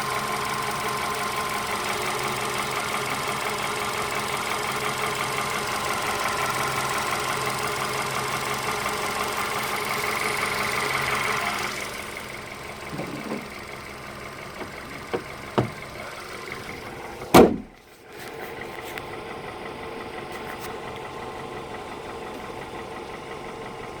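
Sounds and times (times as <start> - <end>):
car engine idling: 0.0 - 24.0
loud slam: 17.3 - 17.8.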